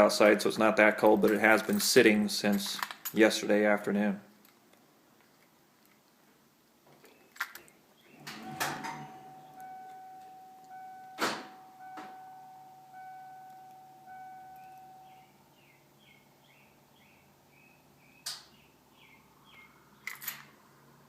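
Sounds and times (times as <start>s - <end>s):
electronic warning tone: 8.2s - 15.4s
higher beep: 8.5s - 15.4s
faint bird chirps: 11.8s - 20.1s.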